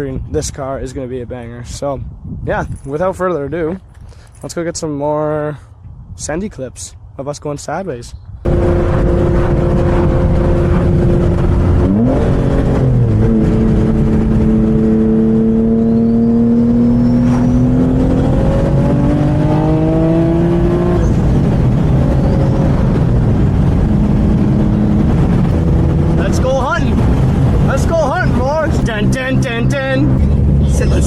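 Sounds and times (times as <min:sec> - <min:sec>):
car engine revving: 0:08.5 - 0:31.0.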